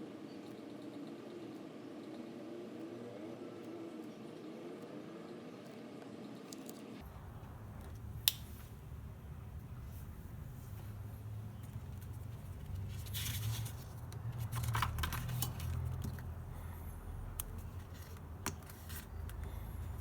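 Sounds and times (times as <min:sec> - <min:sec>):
hands handling packaging: 0:11.7 - 0:16.3.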